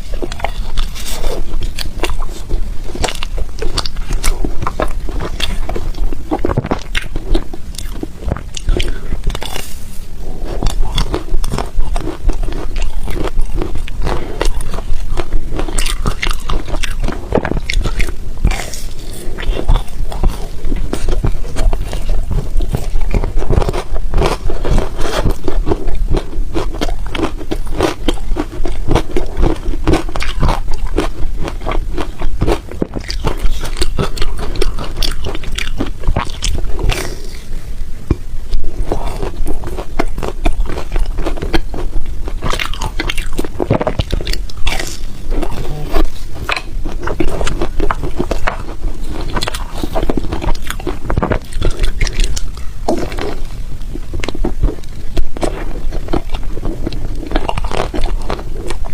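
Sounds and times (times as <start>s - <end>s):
person chewing ice: 0.0s - 58.9s.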